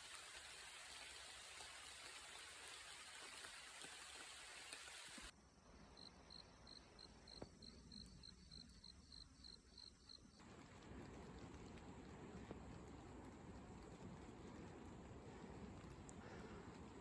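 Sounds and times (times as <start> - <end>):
faint steady hiss: 0.0 - 17.0
insect chirping: 5.3 - 10.4.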